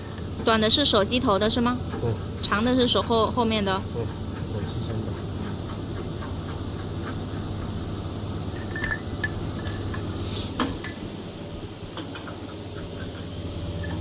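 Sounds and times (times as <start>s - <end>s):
steady low hum: 0.0s - 14.0s
metal hardware clinking: 8.6s - 10.1s.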